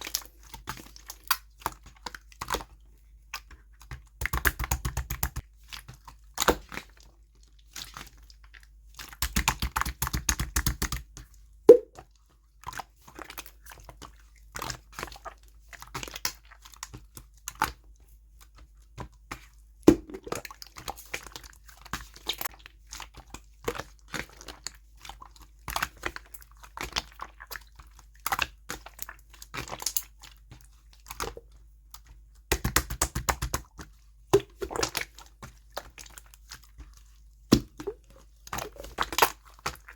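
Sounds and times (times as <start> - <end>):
slime air-bubble pops: 11.7 - 12.0, 19.9 - 20.4, 37.5 - 38.1
slime wet clicks: 37.5 - 39.8.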